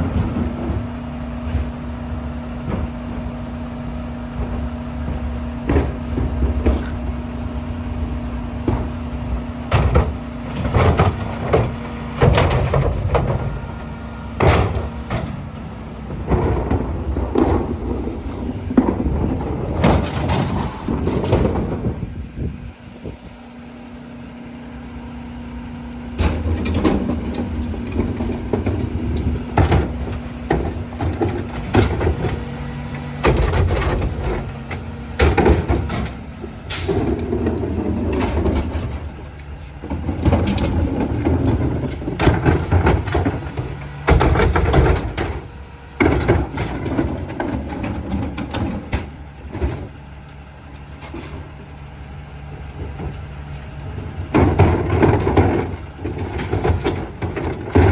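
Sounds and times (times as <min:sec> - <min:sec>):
clanks and bangs from rear loader: 0:00.0 - 0:22.2, 0:26.1 - 0:57.9
diesel engine revving: 0:00.0 - 0:22.7, 0:24.6 - 0:50.1, 0:51.1 - 0:57.9
high squeal: 0:10.4 - 0:15.5, 0:31.6 - 0:36.1.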